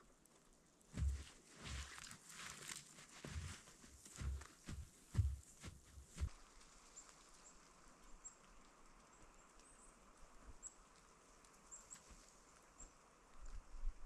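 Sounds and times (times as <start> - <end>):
soft low thuds: 0.9 - 2.1, 3.2 - 6.4.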